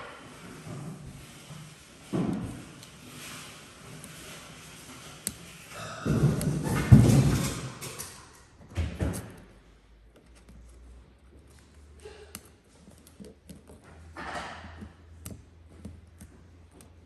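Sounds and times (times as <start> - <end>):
rustling scrape: 0.1 - 8.0
small clicks and taps: 5.2 - 5.6, 10.1 - 17.0.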